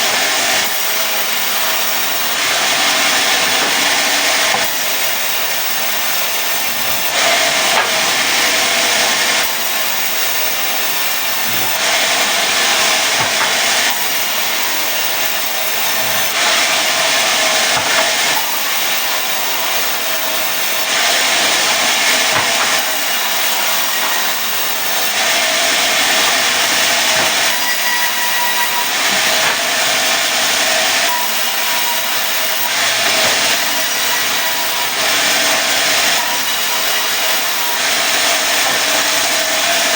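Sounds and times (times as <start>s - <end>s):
saw cutting wood: 0.0s - 39.9s.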